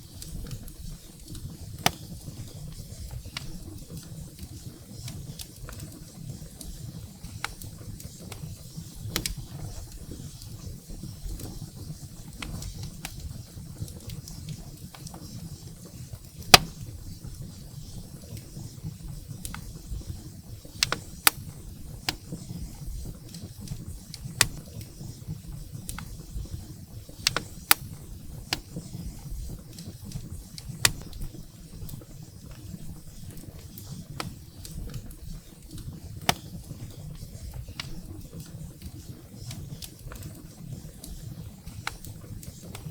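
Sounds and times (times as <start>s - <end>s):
low rumble of flames: 0.0s - 42.9s
firewood popping and snapping: 0.2s - 3.6s, 7.4s - 10.0s, 16.4s - 17.0s, 20.8s - 24.9s, 27.1s - 31.3s.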